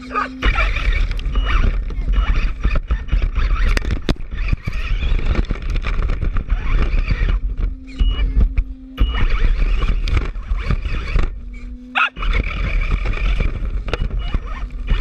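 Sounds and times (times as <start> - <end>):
electric motor whine: 0.0 - 15.0
rc car rattling over rough ground: 0.0 - 15.0.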